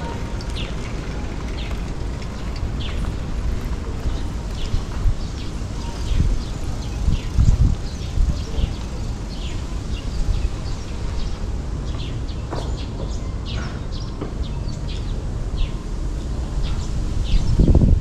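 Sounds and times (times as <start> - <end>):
steady low rumble: 0.0 - 11.9
small birds chirping: 0.4 - 15.8.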